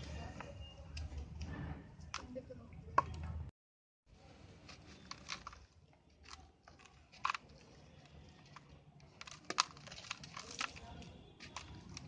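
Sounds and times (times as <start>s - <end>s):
dirt crumbling and crunching: 4.7s - 12.0s.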